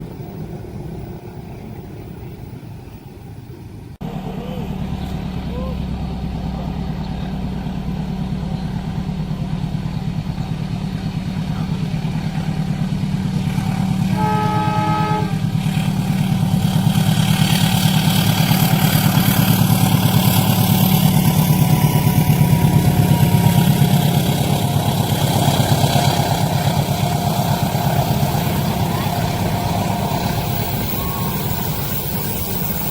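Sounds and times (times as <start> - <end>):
train passing level crossing: 0.0 - 32.9
train horn: 13.6 - 16.0, 22.4 - 32.0
steady low rumble: 15.2 - 32.9.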